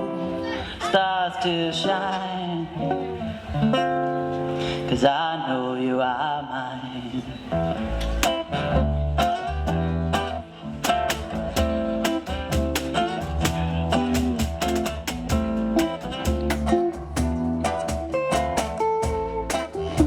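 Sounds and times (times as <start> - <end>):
strummed guitar: 0.0 - 5.2, 7.4 - 20.0
bass guitar: 2.6 - 5.0, 7.4 - 20.0.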